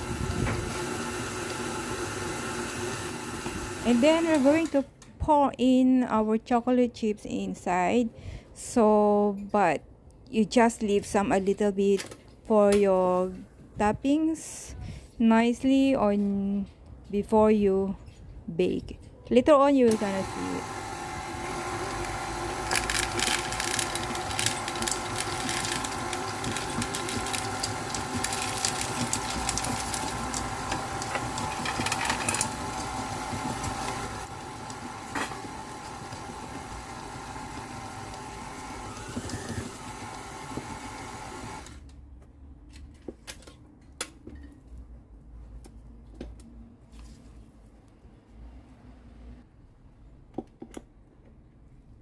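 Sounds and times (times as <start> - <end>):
electric mixer running: 0.0 - 4.7, 19.9 - 41.8.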